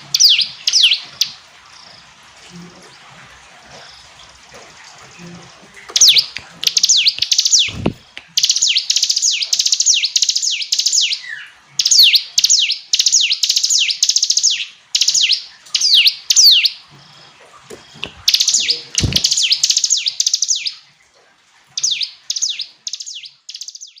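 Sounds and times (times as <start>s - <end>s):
bird singing chipping notes: 0.0s - 1.4s, 5.9s - 20.8s, 21.8s - 24.0s
low thumps: 7.6s - 8.2s.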